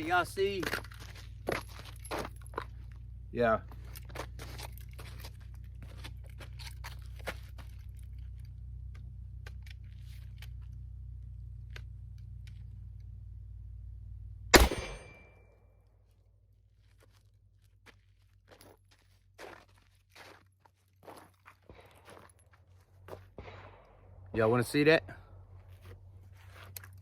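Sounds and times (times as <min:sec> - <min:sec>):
steady low hum: 0:00.0 - 0:15.6, 0:21.7 - 0:27.0
shotgun shot: 0:14.5 - 0:15.4, 0:23.3 - 0:24.5.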